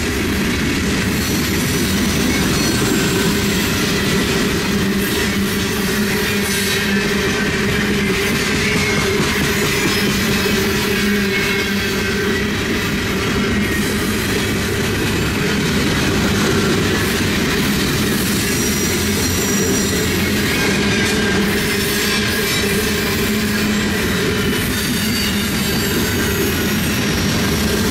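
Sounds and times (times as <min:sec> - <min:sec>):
freight train cars rolling past: 0:00.0 - 0:27.9
faint high wheel squeal: 0:01.3 - 0:12.7, 0:18.2 - 0:27.9.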